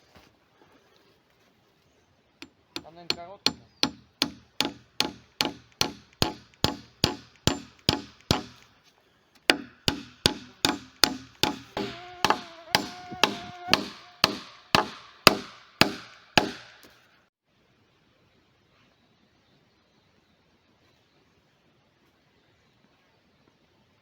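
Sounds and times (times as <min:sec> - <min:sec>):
hammer blows: 0:02.4 - 0:08.6, 0:09.5 - 0:17.0.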